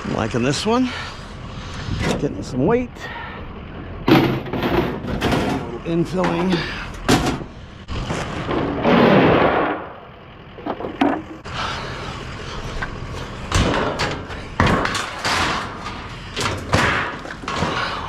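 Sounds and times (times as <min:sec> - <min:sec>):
scrap metal knocks and thumps: 0:04.0 - 0:07.5, 0:10.6 - 0:11.4, 0:13.2 - 0:18.0.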